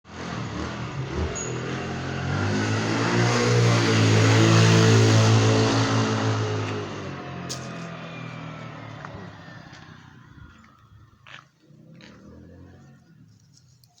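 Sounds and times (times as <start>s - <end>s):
vehicle engine passing by: 0.1s - 13.4s.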